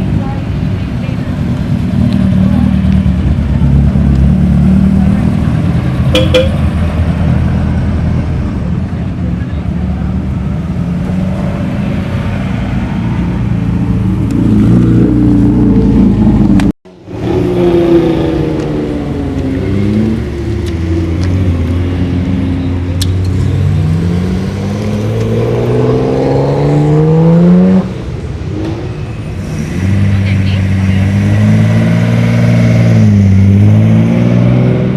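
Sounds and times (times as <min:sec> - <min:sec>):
car engines running: 0:00.0 - 0:34.9
car accelerating away: 0:14.2 - 0:34.9.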